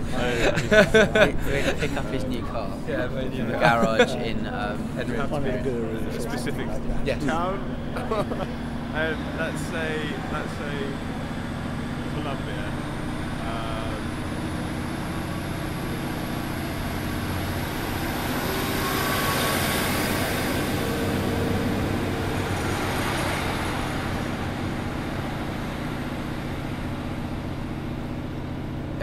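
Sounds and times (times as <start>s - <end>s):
train wheel noise: 0.0s - 3.1s, 3.7s - 29.0s
thin high whine: 0.0s - 28.3s
diesel engine drone: 0.0s - 29.0s.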